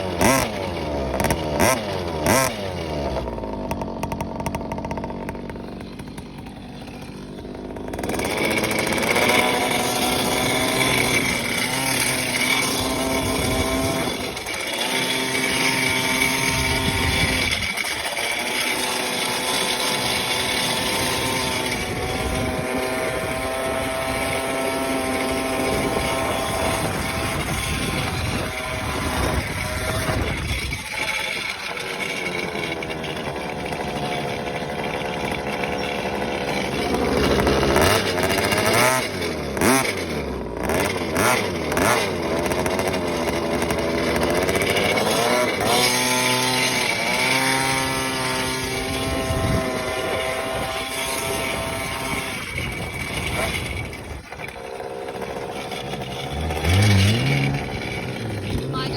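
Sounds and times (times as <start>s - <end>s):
vehicle engine revving and idling: 0.0s - 58.9s.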